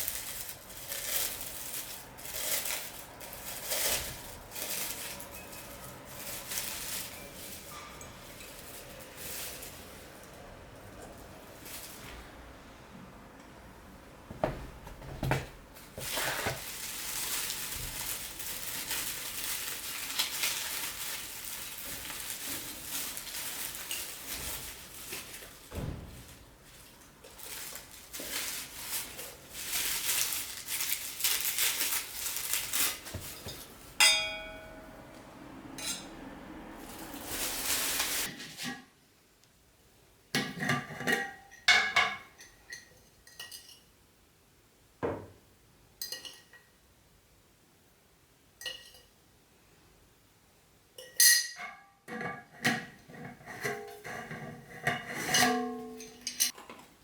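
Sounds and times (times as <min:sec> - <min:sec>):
dishes and utensils clattering: 0:33.2 - 0:35.1, 0:40.4 - 0:43.9, 0:46.0 - 0:46.7, 0:48.6 - 0:49.2, 0:51.0 - 0:56.9
ringing clink: 0:34.0 - 0:34.8.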